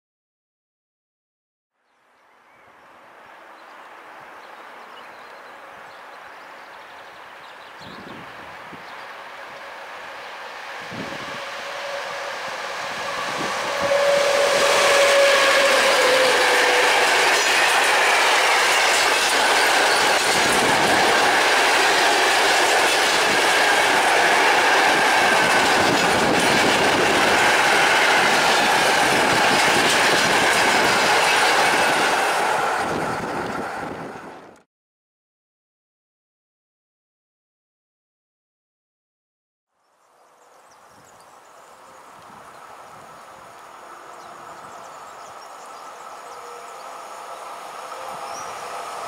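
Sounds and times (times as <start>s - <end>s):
freight train rumble: 7.2s - 34.6s, 41.1s - 49.0s
high wheel squeal: 10.8s - 17.1s, 43.9s - 49.0s
clickety-clack of train wheels: 12.5s - 34.6s.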